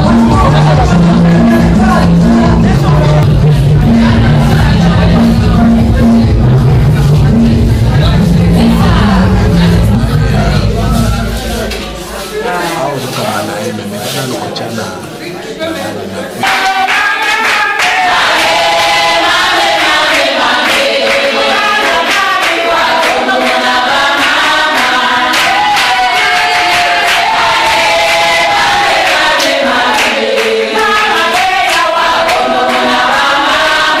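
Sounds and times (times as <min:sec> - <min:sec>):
sharp even beats: 0:00.0 - 0:14.2
group singing festive song: 0:00.0 - 0:14.9, 0:15.8 - 0:34.0.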